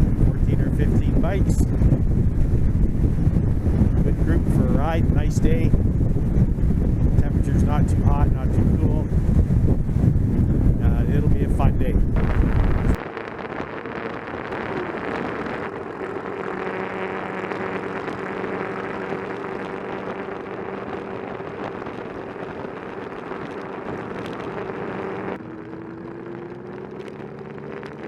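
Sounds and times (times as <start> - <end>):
motorcycle engine running: 0.0 - 28.0
wind and road noise: 0.0 - 28.0.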